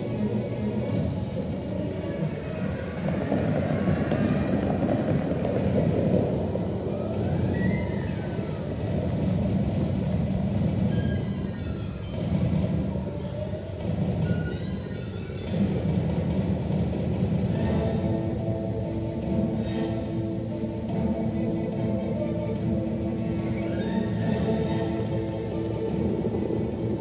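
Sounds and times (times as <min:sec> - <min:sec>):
heavy low rumble: 0:00.0 - 0:14.3, 0:15.4 - 0:27.0
loud music over loudspeakers: 0:15.4 - 0:27.0.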